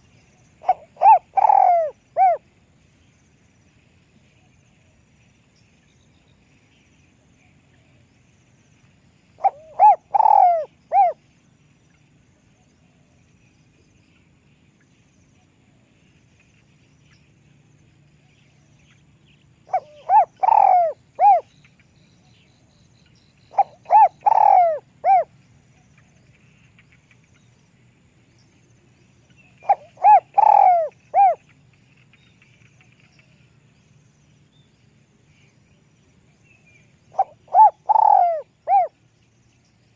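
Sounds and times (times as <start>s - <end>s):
dove cooing: 0.6s - 2.4s, 9.4s - 11.2s, 19.7s - 21.5s, 23.5s - 25.3s, 29.6s - 31.4s, 37.1s - 39.0s.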